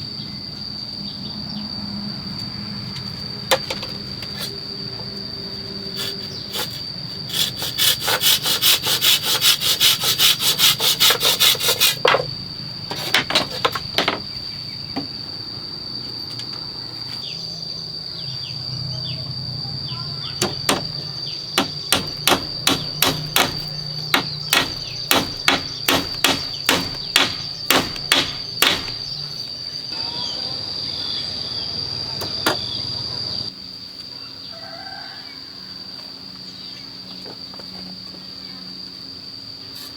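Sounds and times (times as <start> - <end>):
high insect drone: 0.0 - 39.9
rasping sawing strokes: 6.0 - 12.3, 21.6 - 29.3
hammer blows on wood: 20.4 - 29.3.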